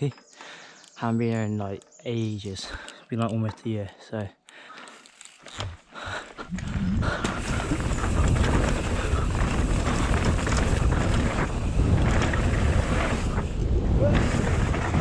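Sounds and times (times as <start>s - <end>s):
bike knocks and rattles: 5.5s - 15.0s
wind rushing over microphone: 6.4s - 15.0s.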